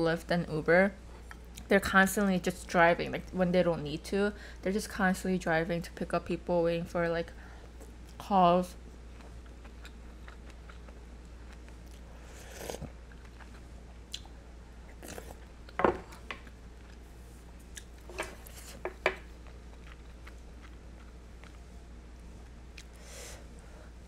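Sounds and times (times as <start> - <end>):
low steady hum: 0.0 - 24.0
chewing and mouth sounds: 9.1 - 17.0, 17.6 - 21.7.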